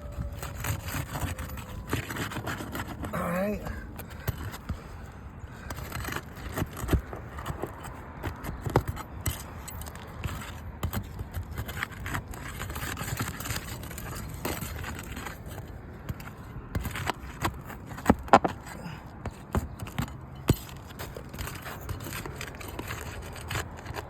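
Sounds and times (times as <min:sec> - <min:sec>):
roof shingles scraping and crackling: 0:09.9 - 0:15.6.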